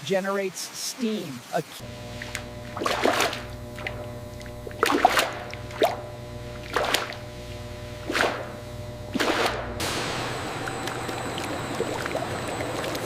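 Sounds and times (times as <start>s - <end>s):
steady low hum: 1.8s - 13.0s
thick syrup splashing: 9.2s - 13.0s.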